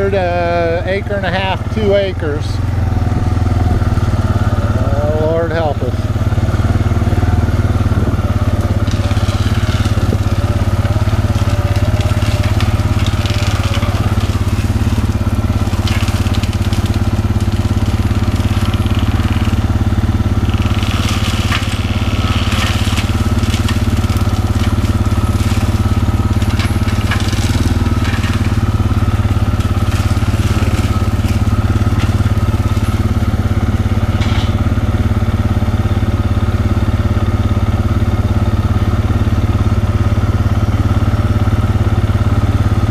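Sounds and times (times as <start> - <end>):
diesel engine under load: 0.0 - 42.9
wood crackling and snapping: 6.1 - 35.0
cutter head grinding brush: 7.9 - 32.3.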